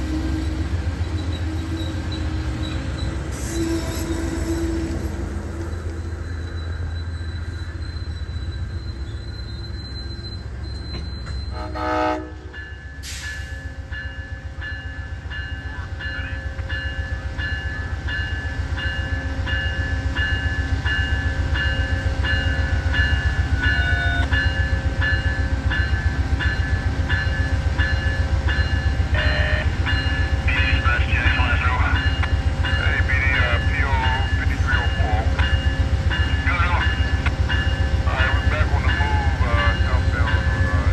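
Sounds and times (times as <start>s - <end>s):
train rumbling: 0.0s - 40.9s
train horn blast: 3.3s - 5.3s, 11.5s - 12.6s, 29.2s - 29.7s.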